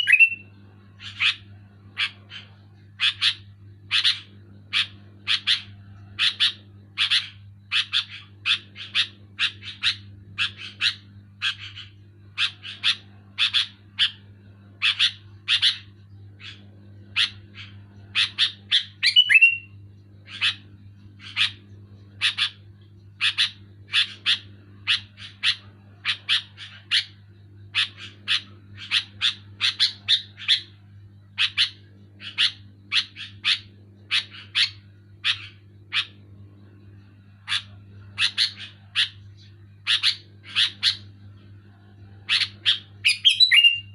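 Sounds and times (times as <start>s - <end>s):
low hum: 18.8s - 43.2s
bird calling short notes: 43.0s - 43.9s.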